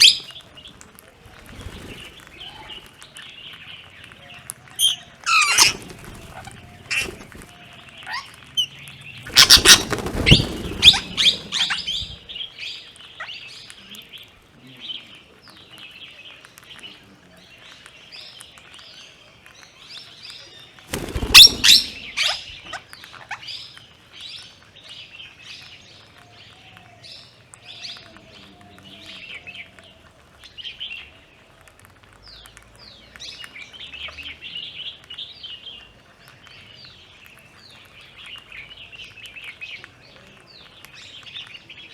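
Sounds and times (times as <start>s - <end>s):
wing flapping: 0.0s - 12.7s, 20.7s - 23.4s
birds chirping: 0.0s - 41.9s.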